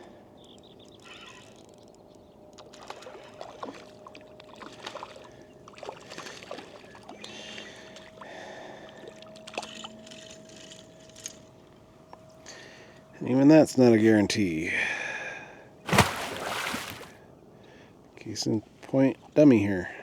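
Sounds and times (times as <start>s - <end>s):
water splashing: 15.9s - 17.2s.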